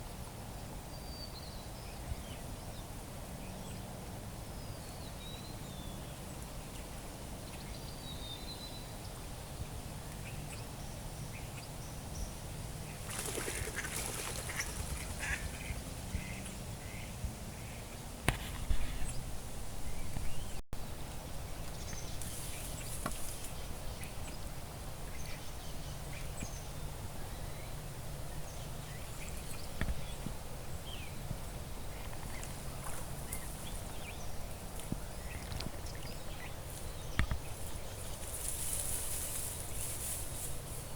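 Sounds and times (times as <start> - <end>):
small birds chirping: 4.6 - 18.0, 21.5 - 40.9
waterfowl calling: 13.1 - 17.1.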